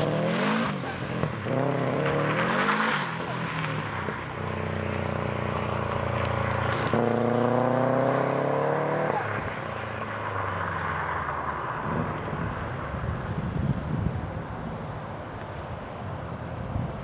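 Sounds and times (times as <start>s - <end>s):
car engine revving: 0.0s - 9.5s.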